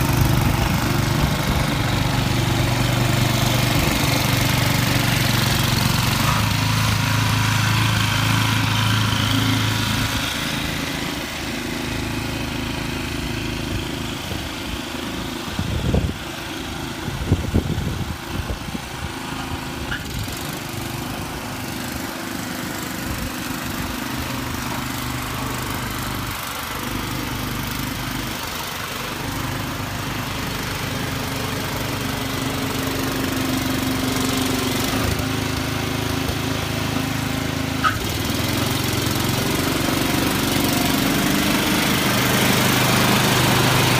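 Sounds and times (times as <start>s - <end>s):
snowblower engine running: 0.0s - 43.9s.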